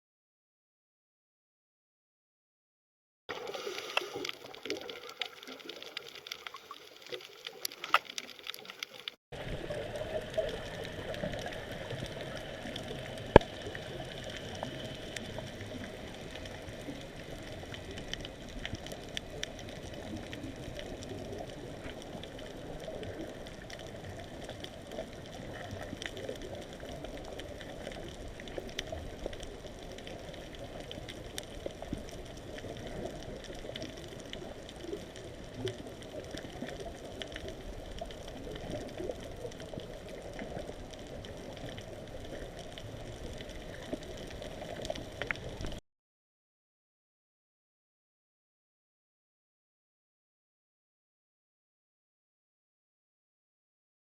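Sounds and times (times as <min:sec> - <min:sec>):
water noise: 0:03.3 - 0:45.8.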